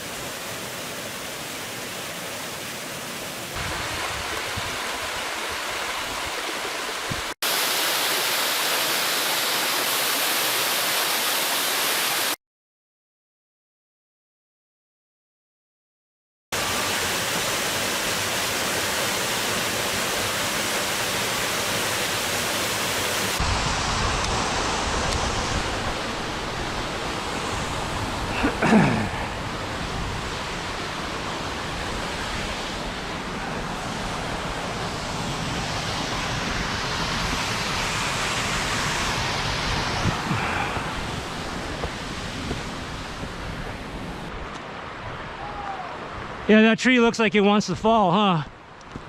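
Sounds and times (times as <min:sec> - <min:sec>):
waterfall rushing: 0:00.0 - 0:12.4, 0:16.6 - 0:46.5
wind buffeting microphone: 0:34.1 - 0:44.3.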